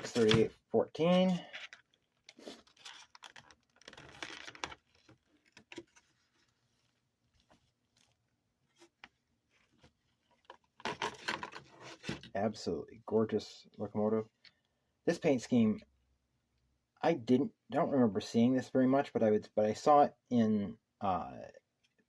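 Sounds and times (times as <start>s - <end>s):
packaging rustling: 0.0s - 6.7s.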